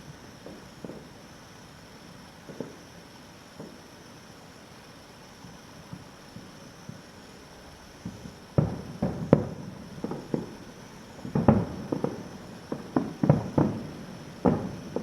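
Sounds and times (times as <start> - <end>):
distant fireworks bangs: 8.0 - 15.0.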